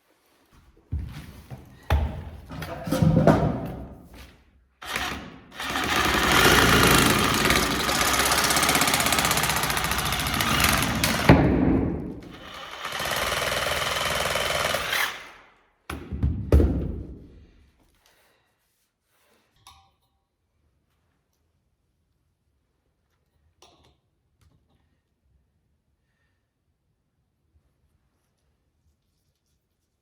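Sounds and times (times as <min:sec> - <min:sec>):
power tool pulsing rattle: 0:04.8 - 0:11.5, 0:12.2 - 0:15.4.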